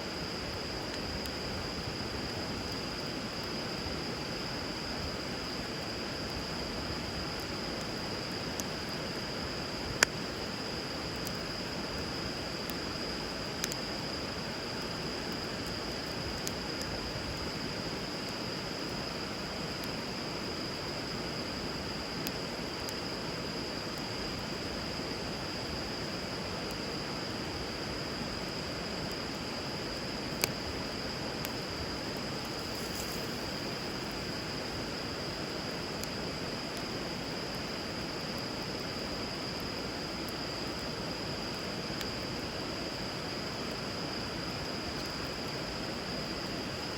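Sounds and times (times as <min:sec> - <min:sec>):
wood fire popping: 0:28.4 - 0:38.0.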